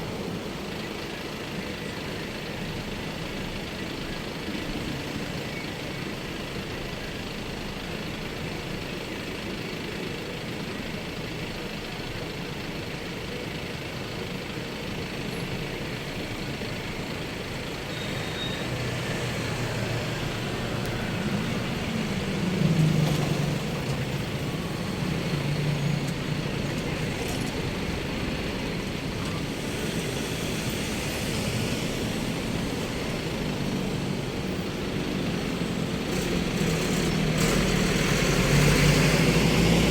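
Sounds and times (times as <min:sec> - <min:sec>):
road traffic hum: 0:00.0 - 0:39.9
heavy vehicle engine passing: 0:17.0 - 0:39.9.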